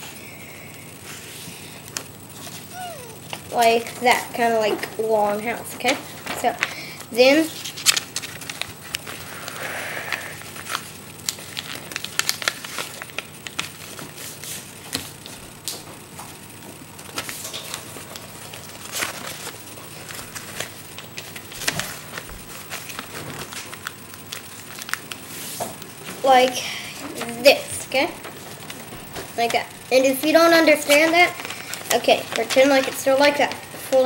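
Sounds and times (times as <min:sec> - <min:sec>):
paper crinkling and rustling: 0:07.4 - 0:09.2, 0:10.6 - 0:15.4, 0:18.5 - 0:26.5, 0:30.8 - 0:33.6
paper creasing clicks: 0:07.5 - 0:14.3, 0:29.4 - 0:34.0.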